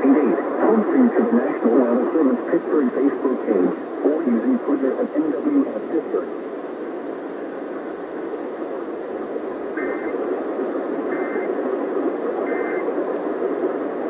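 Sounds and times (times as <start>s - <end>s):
radio static hiss: 0.0s - 14.0s
short data burst tones: 9.7s - 13.6s.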